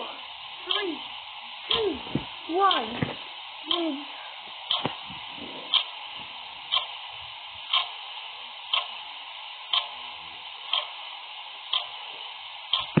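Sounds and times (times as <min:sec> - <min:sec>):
clock ticking: 0:00.0 - 0:01.1, 0:01.7 - 0:03.0, 0:03.6 - 0:05.1, 0:05.7 - 0:06.0, 0:06.7 - 0:07.1, 0:07.7 - 0:08.1, 0:08.7 - 0:09.1, 0:09.7 - 0:11.1, 0:11.7 - 0:12.1, 0:12.7 - 0:13.0
faint steady hiss: 0:00.0 - 0:13.0.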